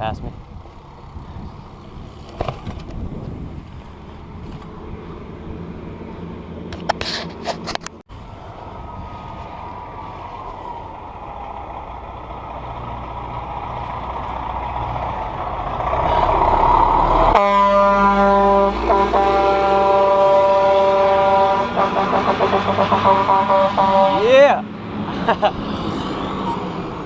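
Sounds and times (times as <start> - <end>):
dump truck engine: 0.4 - 27.0
truck horn blasting: 16.0 - 16.5, 17.2 - 24.4.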